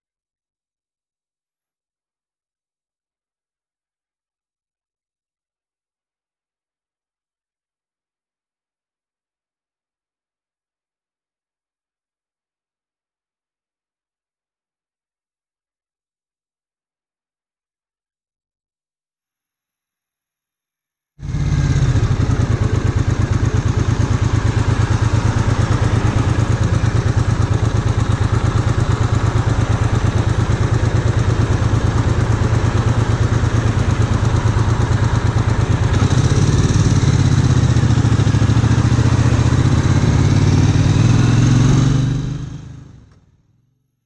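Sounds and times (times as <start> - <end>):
motorcycle engine running: 21.2 - 43.1.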